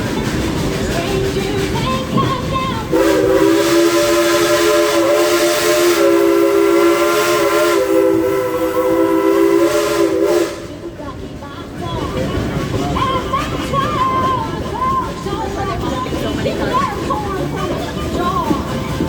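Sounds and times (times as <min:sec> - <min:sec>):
rushing steam hiss: 0:00.0 - 0:19.0
steam locomotive whistle: 0:02.9 - 0:10.9.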